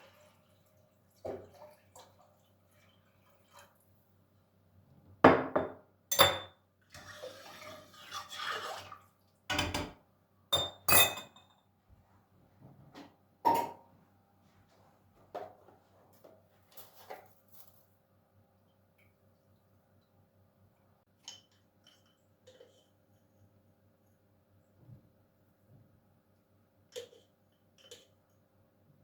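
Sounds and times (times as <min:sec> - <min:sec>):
dishes and glassware clinking: 0:05.3 - 0:06.6, 0:10.5 - 0:11.6, 0:13.5 - 0:13.9.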